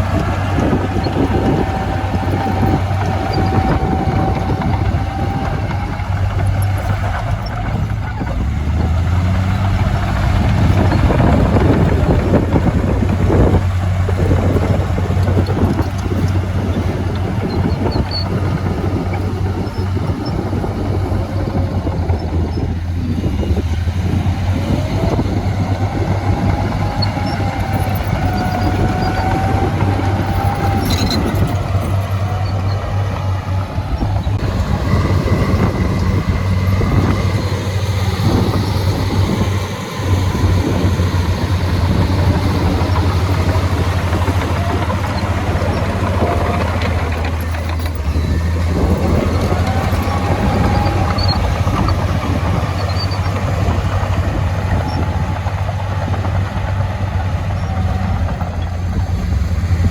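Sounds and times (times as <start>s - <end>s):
heavy diesel machinery running: 0.0s - 59.9s.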